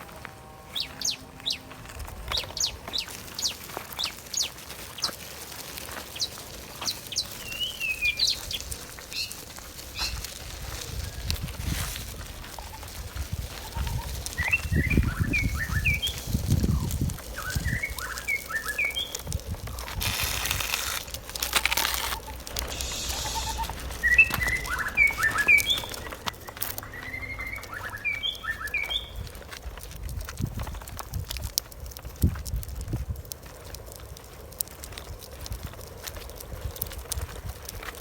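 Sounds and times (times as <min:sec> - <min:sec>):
small birds chirping: 0:00.0 - 0:38.0
low rumble: 0:19.1 - 0:30.8
rushing hiss: 0:22.4 - 0:26.3.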